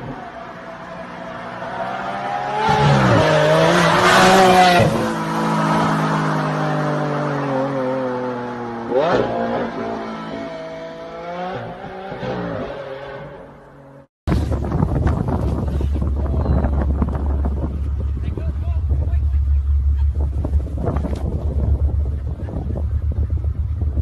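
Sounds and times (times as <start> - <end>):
car engine accelerating: 14.5 - 24.0.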